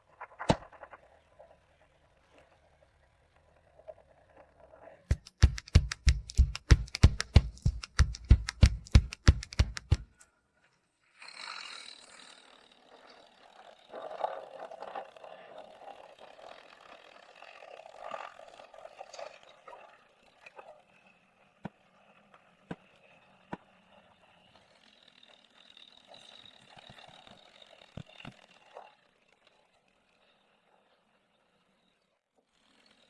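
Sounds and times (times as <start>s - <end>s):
sharp loud knocks: 5.1s - 10.2s.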